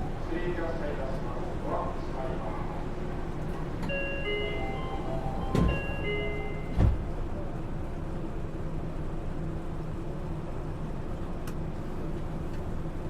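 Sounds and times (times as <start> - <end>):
monorail car rumbling: 0.0 - 13.0
doors shutting thump: 5.4 - 6.0, 6.7 - 7.1.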